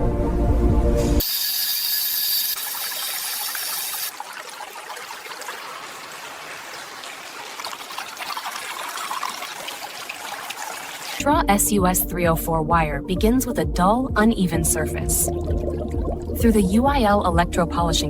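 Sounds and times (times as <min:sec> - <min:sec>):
liquid fizzing and trickling: 0:01.2 - 0:11.2.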